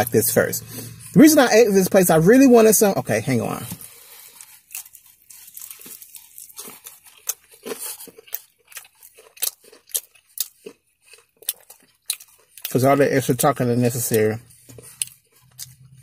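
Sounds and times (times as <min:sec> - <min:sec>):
person chewing crispy chicken: 0:03.2 - 0:16.0.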